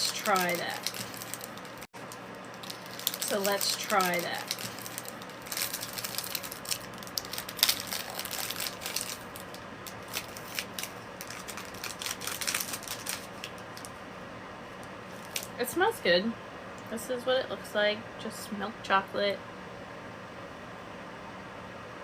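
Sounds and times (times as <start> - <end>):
wrapper crinkling: 0.0 - 14.0, 15.1 - 15.6.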